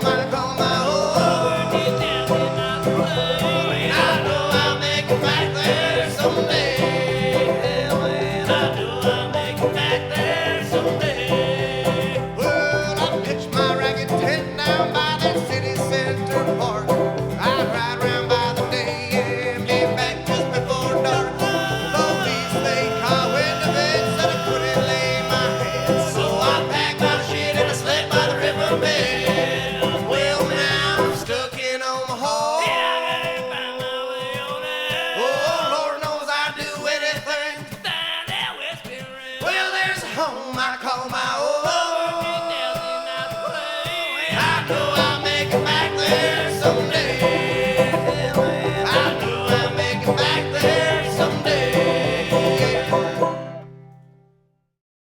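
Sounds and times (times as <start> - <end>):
bluegrass string band playing: 0.0 - 31.6, 44.4 - 54.0
banjo: 0.0 - 54.2.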